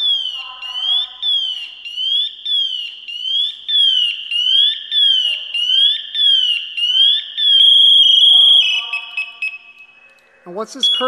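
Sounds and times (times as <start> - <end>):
high warbling electronic alarm: 0.0 - 10.2, 10.8 - 11.0.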